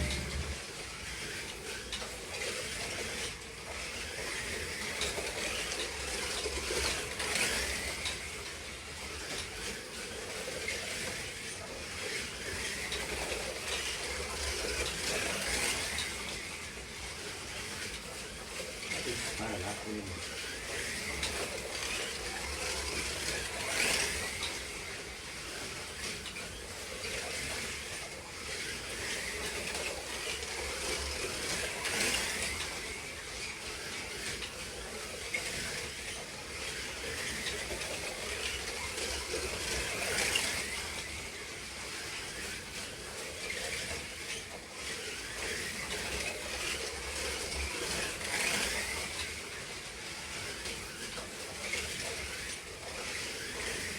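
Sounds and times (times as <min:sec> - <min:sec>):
slot car electric motors whining: 0:00.0 - 0:01.4.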